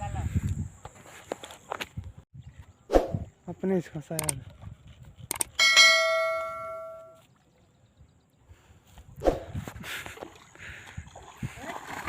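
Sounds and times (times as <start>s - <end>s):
struck metal object ringing: 5.6s - 7.2s.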